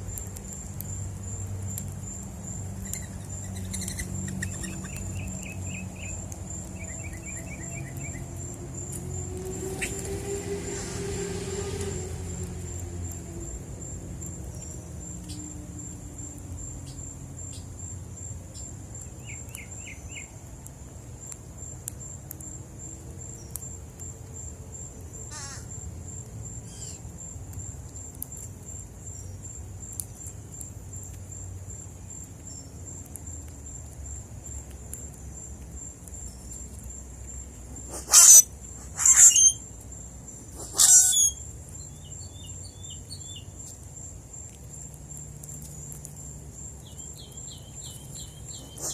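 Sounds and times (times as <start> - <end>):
high insect trill: 0.0 - 48.9
soft bird chirps: 0.1 - 8.5, 36.1 - 43.8, 46.8 - 48.9
loud harsh bird calls: 37.9 - 39.6, 40.6 - 41.4, 48.2 - 48.9.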